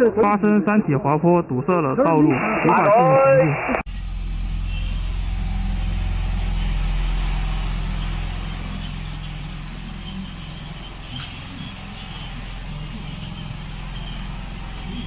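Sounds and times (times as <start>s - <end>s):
vehicle engine idling: 3.9s - 15.0s.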